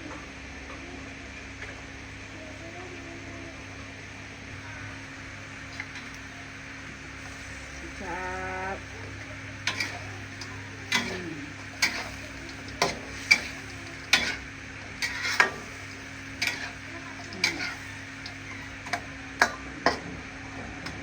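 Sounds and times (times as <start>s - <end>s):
low hum: 4.5s - 19.8s
food sizzling in a pan: 4.6s - 21.0s
metal spatula scraping a pan: 9.6s - 18.7s.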